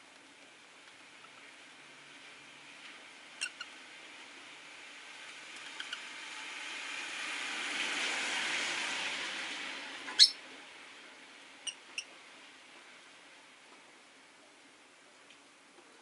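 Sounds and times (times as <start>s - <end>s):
car passing on wet street: 3.8s - 11.6s
lovebirds chirping: 10.1s - 10.4s.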